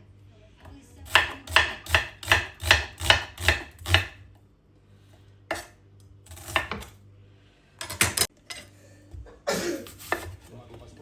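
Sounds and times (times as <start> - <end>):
knife chopping on cutting board: 1.1 - 4.2, 5.5 - 7.0, 9.8 - 10.5
utensils and dishes knocking: 7.8 - 8.3.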